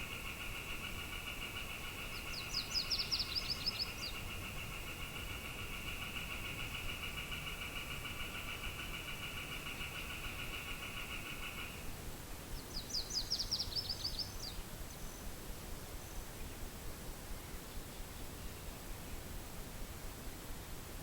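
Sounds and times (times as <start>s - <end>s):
songbird trill: 0.0s - 11.9s, 12.5s - 16.7s
low background hiss: 0.0s - 21.0s.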